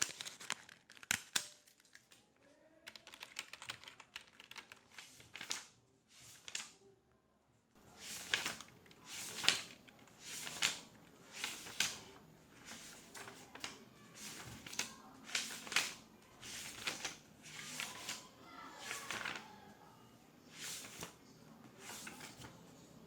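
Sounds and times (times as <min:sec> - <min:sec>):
keyboard typing: 0:02.9 - 0:05.5.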